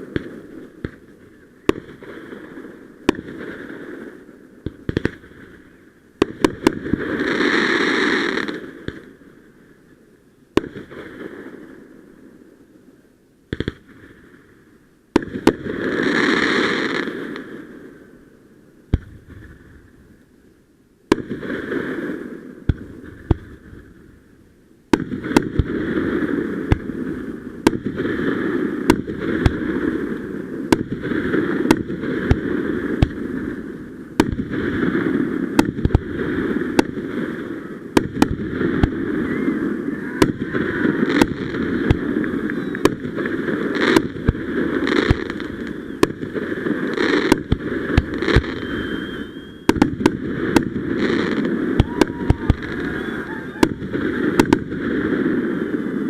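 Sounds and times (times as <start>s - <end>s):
fireworks bangs: 0.0s - 9.2s, 15.1s - 17.7s, 24.9s - 56.0s
continuous noise: 16.8s - 56.0s.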